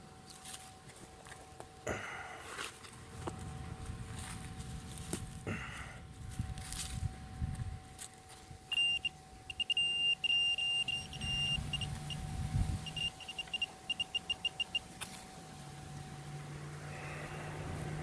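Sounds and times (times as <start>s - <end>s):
low hum: 0.0s - 18.0s
metal detector beeping: 6.2s - 15.3s.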